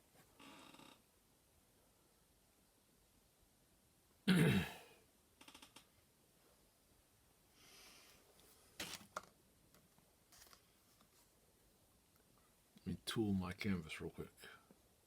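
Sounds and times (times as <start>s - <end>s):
soft rustle: 6.3s - 12.8s.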